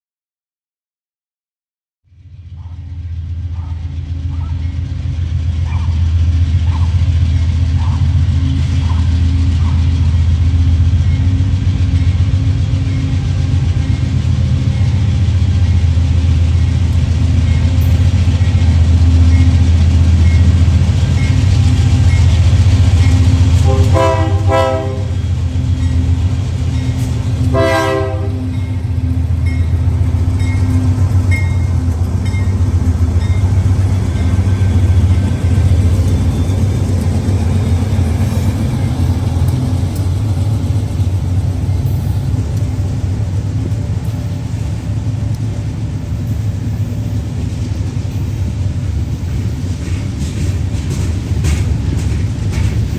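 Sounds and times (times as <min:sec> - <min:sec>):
locomotive engine rumble: 0:02.4 - 0:52.9
multi-tone train horn: 0:23.0 - 0:26.0, 0:27.3 - 0:29.0.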